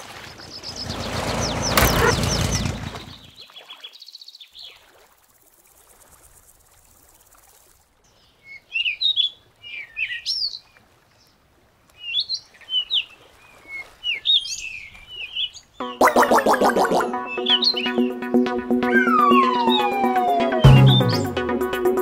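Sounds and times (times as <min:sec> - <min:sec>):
songbirds chirping: 0:00.0 - 0:04.9, 0:08.0 - 0:21.4
sliding whistled notes: 0:15.8 - 0:21.6.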